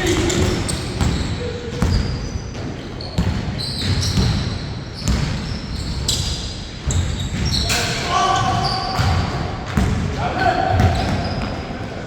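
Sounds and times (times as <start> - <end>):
basketball bouncing on a court: 0.0 - 6.2, 8.4 - 11.6.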